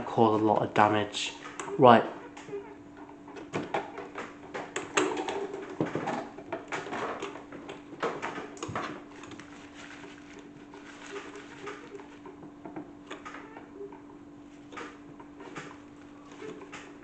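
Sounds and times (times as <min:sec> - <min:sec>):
toy washing machine humming: 0:01.4 - 0:17.0
plastic pieces clattering: 0:08.0 - 0:12.2.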